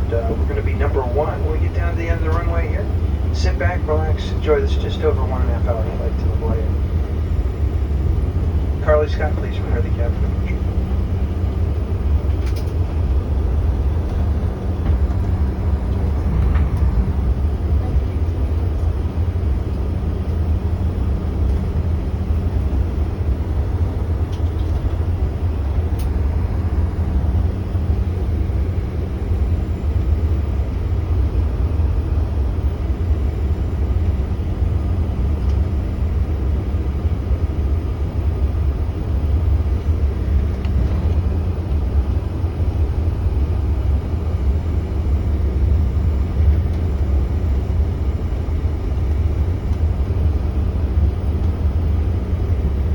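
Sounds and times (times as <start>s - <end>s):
faint jet engine hum: 0.0s - 52.9s
jet cabin rumble while taxiing: 0.0s - 52.9s.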